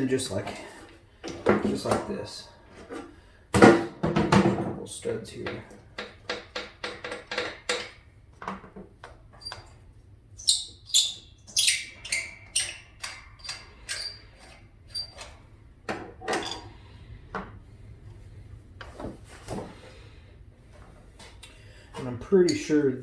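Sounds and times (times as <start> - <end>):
metal clinks and knocks: 5.4 - 8.0, 10.4 - 15.4, 16.0 - 16.8.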